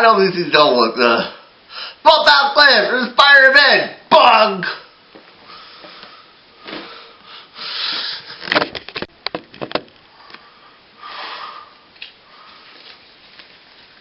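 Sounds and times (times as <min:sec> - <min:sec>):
sharp clicks and knocks: 0:08.4 - 0:10.1.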